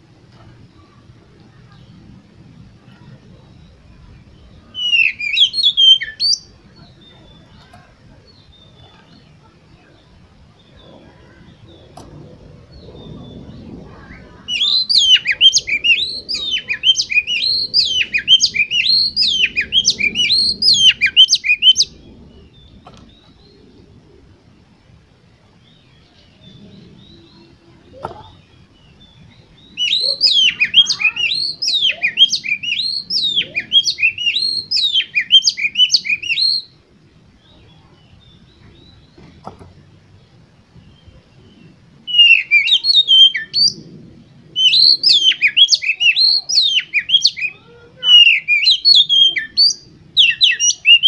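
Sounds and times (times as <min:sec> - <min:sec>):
bird singing whistled phrases: 0:04.4 - 0:07.6, 0:12.7 - 0:23.6, 0:28.2 - 0:36.8, 0:42.1 - 0:43.9, 0:44.6 - 0:51.0.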